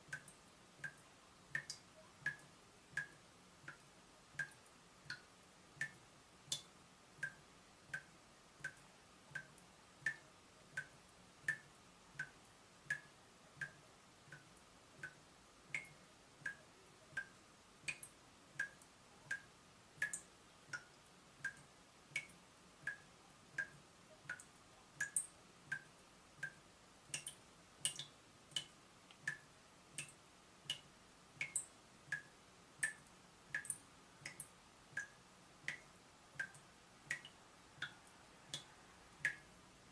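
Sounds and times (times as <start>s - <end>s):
water dripping from tap: 0.1s - 39.5s.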